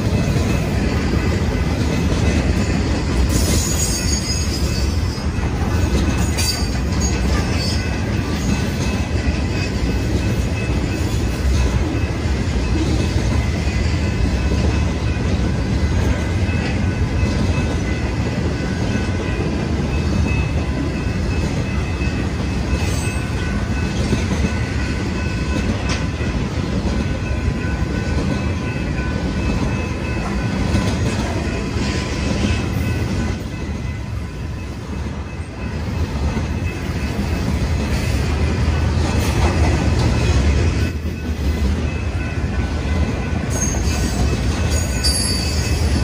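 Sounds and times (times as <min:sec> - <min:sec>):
freight train cars rumbling and clacking: 0:00.0 - 0:46.0.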